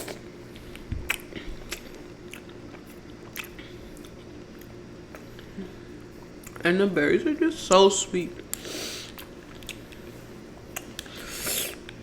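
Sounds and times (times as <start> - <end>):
chewing with wet clicks: 0.0 - 5.5, 6.2 - 6.6, 8.4 - 11.2.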